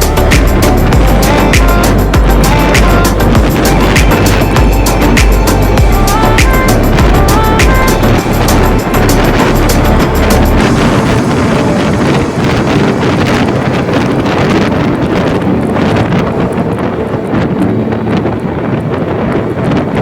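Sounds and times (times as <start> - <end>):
faint engine running: 0.0 - 14.2
wind rushing over microphone: 0.0 - 20.0.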